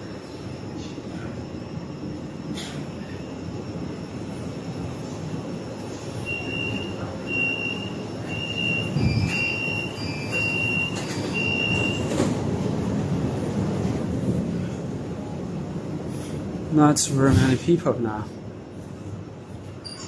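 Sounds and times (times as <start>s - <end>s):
train rumble: 0.0s - 20.0s
door warning beeps: 6.2s - 12.4s
train doors shutting knock: 6.3s - 12.7s.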